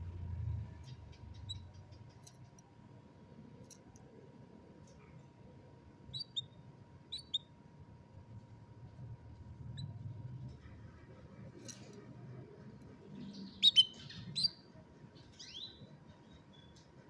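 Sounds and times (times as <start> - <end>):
canary chirping: 0.8 - 2.2, 6.1 - 7.5, 9.6 - 10.7, 13.2 - 16.8.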